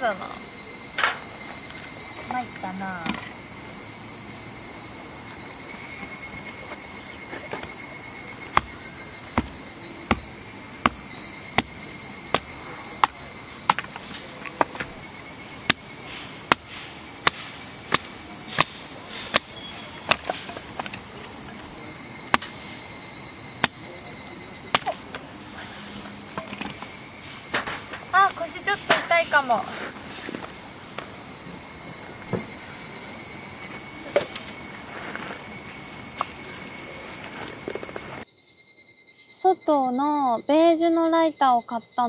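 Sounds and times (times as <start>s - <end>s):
insects shrilling: 0.0s - 42.0s
wood being chopped: 8.5s - 21.3s, 22.3s - 22.7s, 23.6s - 23.9s, 24.7s - 25.3s.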